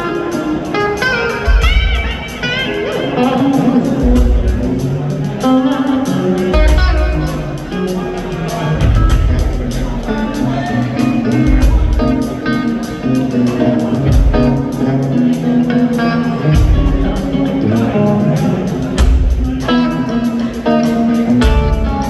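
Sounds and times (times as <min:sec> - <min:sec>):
bass guitar: 0:00.0 - 0:22.0
electric guitar riffing: 0:00.0 - 0:22.0
steady drum beat: 0:00.0 - 0:22.0.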